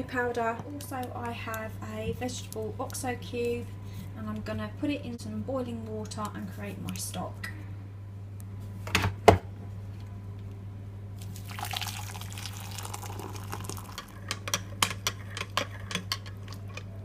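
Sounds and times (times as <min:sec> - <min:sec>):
boiling water pouring: 0:11.2 - 0:14.6.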